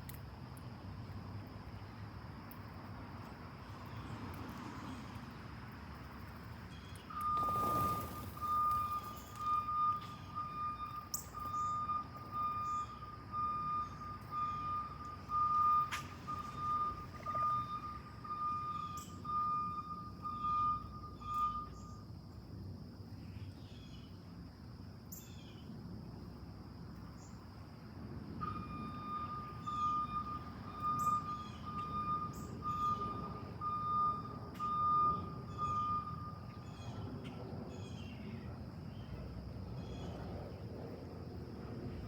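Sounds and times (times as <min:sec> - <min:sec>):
vehicle reversing alarm beeping: 0:06.8 - 0:22.2, 0:28.3 - 0:37.2.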